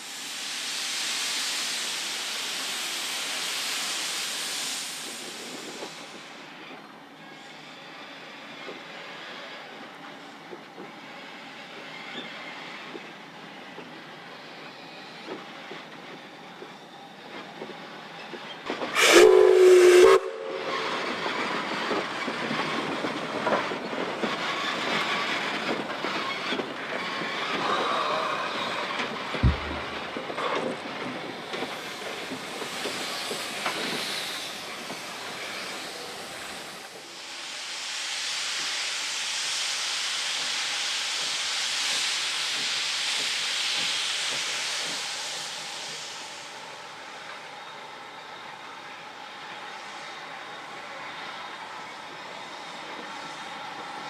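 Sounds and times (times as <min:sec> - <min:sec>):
steam train running: 0:00.0 - 0:54.0
steam whistle blast: 0:19.0 - 0:21.4.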